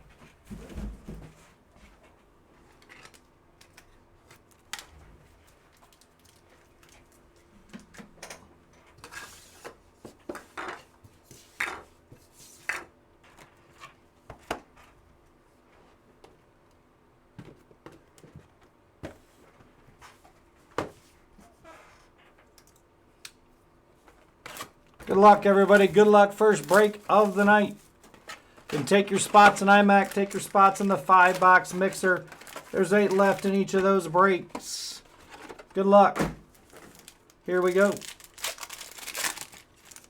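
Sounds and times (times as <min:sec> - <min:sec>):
cards being handled: 0:24.4 - 0:36.0, 0:36.6 - 0:40.0.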